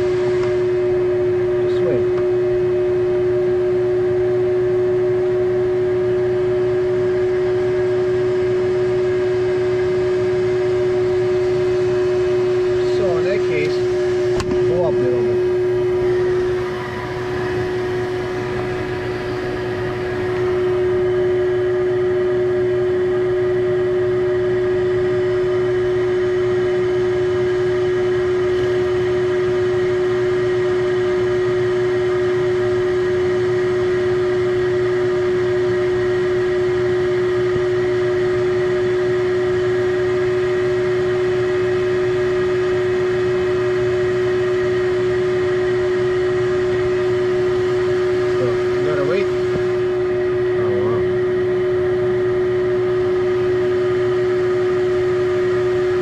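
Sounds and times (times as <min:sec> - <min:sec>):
high-pitched vacuum motor hum: 0:00.0 - 0:56.0.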